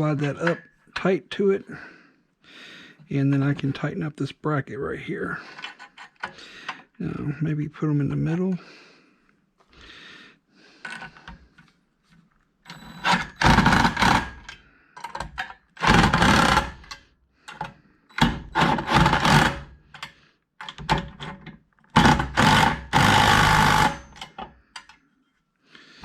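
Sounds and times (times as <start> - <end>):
impact driver tightening nuts: 12.7 - 25.0.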